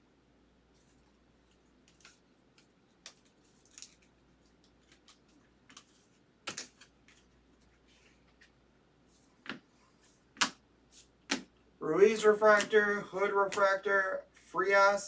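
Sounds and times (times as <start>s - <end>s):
soft rustles: 3.1s - 10.3s.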